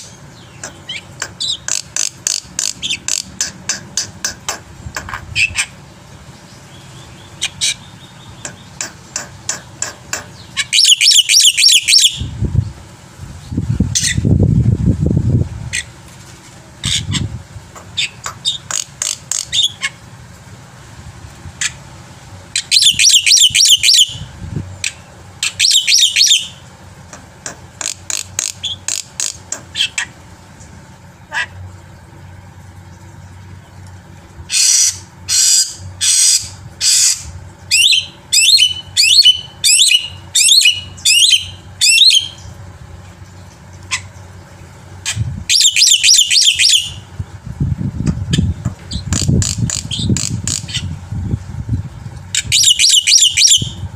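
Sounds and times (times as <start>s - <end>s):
bird chattering song: 0.0s - 5.8s, 6.4s - 12.3s, 16.8s - 20.0s, 22.5s - 26.6s, 27.4s - 30.2s, 34.5s - 42.6s, 45.0s - 47.1s, 48.0s - 51.0s, 52.4s - 53.8s
steady low hum: 0.0s - 53.9s
short quieter bird calls: 6.5s - 12.2s.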